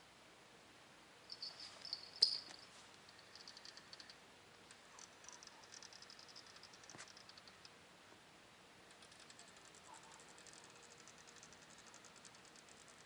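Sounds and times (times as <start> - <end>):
high rapid chirping trills: 1.3 - 4.2, 5.2 - 7.5.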